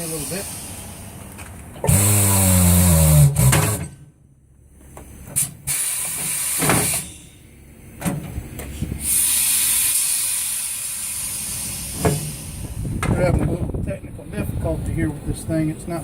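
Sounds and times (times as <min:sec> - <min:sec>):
compressed air hissing bursts: 0:00.0 - 0:01.2, 0:05.4 - 0:07.3, 0:09.0 - 0:12.9.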